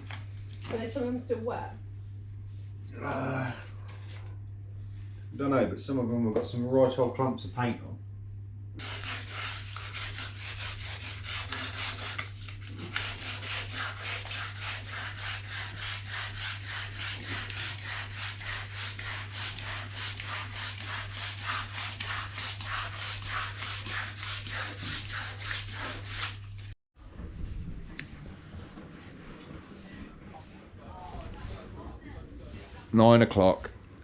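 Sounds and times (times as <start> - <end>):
sandpaper sanding wood: 8.8 - 26.5.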